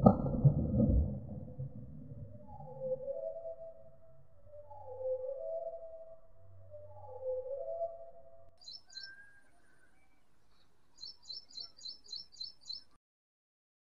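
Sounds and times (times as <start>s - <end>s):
bird chirping: 4.4s - 13.0s.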